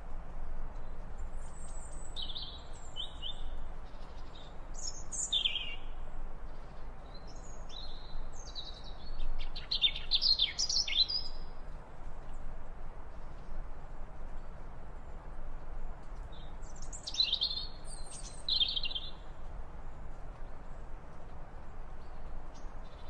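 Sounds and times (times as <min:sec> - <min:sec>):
steady background hiss: 0:00.0 - 0:23.0
small birds chirping: 0:00.8 - 0:11.5, 0:15.9 - 0:19.5, 0:20.4 - 0:23.0.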